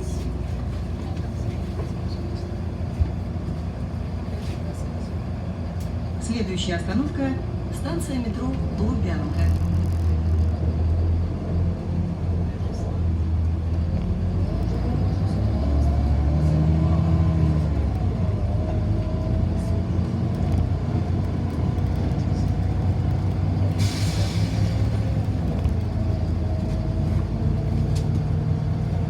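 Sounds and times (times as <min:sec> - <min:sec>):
bus drive whine: 0:00.0 - 0:29.0
bus engine rumble: 0:00.0 - 0:29.0
air brake hiss: 0:23.8 - 0:25.0.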